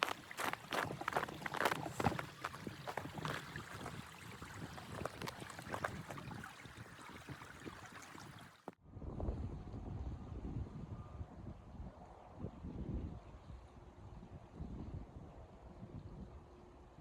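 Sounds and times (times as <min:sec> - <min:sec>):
crunches and scrapes: 0:00.0 - 0:06.2
wind rumble on microphone: 0:00.0 - 0:17.0.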